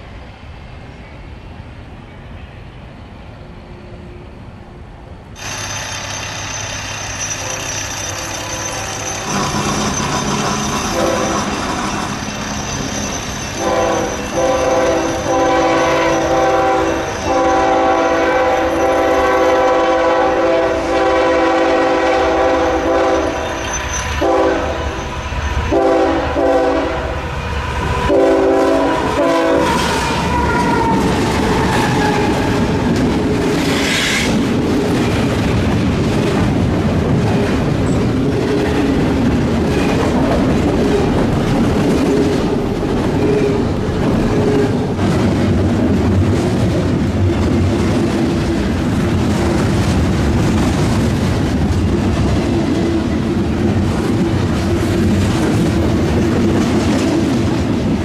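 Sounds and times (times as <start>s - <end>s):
train wheels clattering on rails: 5.4s - 58.0s
train horn blasts: 7.4s - 12.2s, 13.6s - 23.6s, 24.2s - 25.1s, 25.7s - 27.3s, 28.0s - 31.1s.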